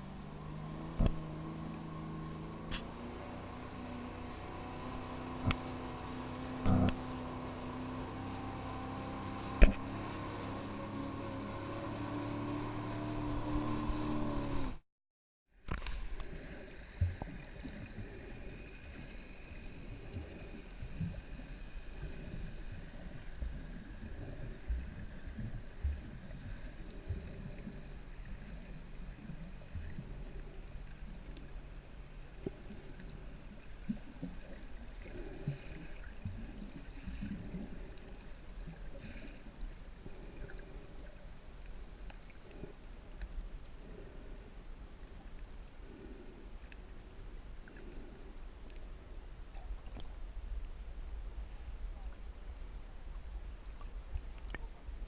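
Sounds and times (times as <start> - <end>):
jet ski engine running: 0.0 - 14.8
rush of water and wind: 0.0 - 14.8.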